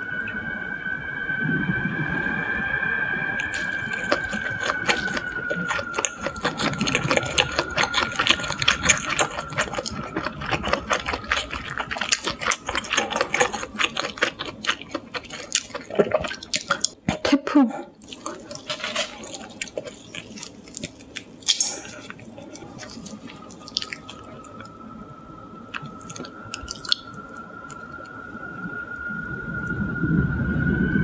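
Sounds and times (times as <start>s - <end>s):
faint high whine: 0.0s - 17.0s, 17.9s - 31.0s
wet chewing mouth sounds: 3.4s - 17.4s, 18.0s - 24.8s, 25.7s - 28.1s.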